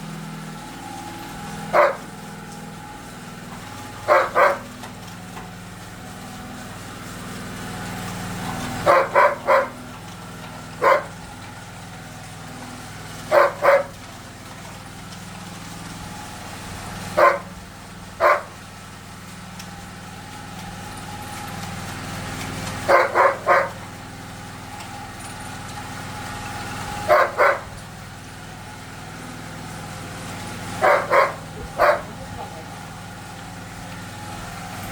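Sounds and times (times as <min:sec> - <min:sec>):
low engine hum: 0:00.0 - 0:34.9
dog barking: 0:01.7 - 0:02.1, 0:04.1 - 0:04.7, 0:08.8 - 0:09.8, 0:10.8 - 0:11.2, 0:13.3 - 0:14.0, 0:17.2 - 0:17.6, 0:18.2 - 0:18.6, 0:22.9 - 0:23.8, 0:27.1 - 0:27.8, 0:30.8 - 0:32.6.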